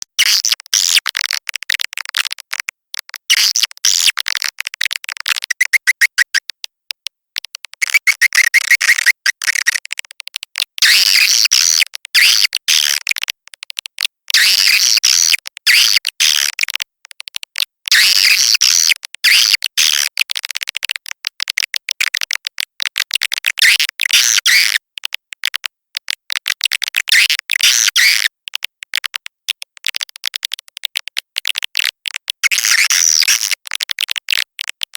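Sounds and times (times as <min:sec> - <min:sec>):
swiftlet chirps and twitters: 0:05.5 - 0:06.4, 0:07.8 - 0:09.8.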